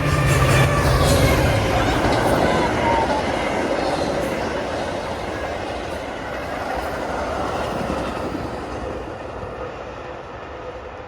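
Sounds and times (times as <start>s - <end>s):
train wheels clattering on rails: 0.0s - 11.0s.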